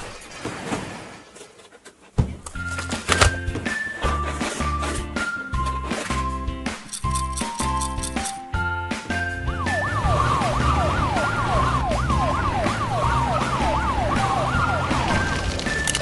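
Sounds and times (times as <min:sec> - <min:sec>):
background music with steady beat: 0:02.4 - 0:15.1
wailing siren: 0:09.3 - 0:16.0.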